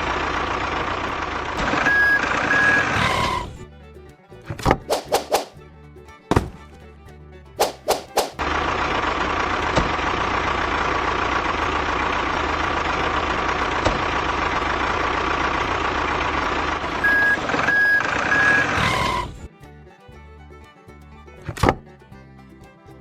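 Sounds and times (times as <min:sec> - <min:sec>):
truck engine running: 0:00.0 - 0:23.0
reversing beeps: 0:01.8 - 0:03.4, 0:17.0 - 0:19.2.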